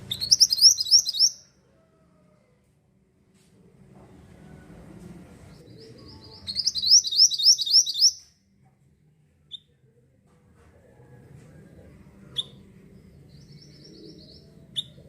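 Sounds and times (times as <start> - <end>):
bird chirp: 0.0 - 1.4, 5.5 - 8.3, 12.3 - 15.0
bird whistling rising notes: 0.1 - 1.4, 6.5 - 8.2.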